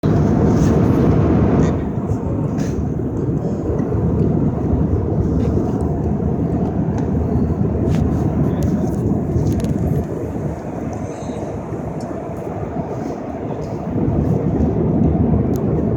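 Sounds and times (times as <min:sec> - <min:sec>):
jet engine cabin rumble: 0:00.0 - 0:15.9.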